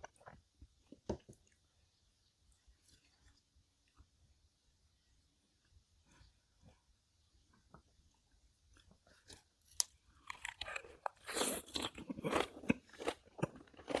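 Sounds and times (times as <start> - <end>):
crunchy wet chewing: 8.7 - 14.0.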